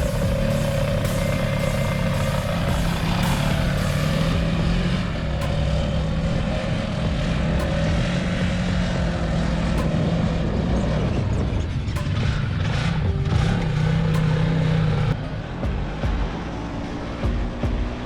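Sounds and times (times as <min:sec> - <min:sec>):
dune buggy engine running: 0:00.0 - 0:18.0.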